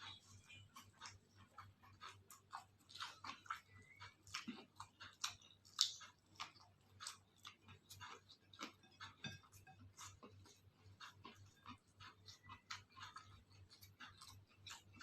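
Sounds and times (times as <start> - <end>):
close-miked chewing: 0.0 - 15.0
wet mouth clicks and smacks: 0.9 - 9.4.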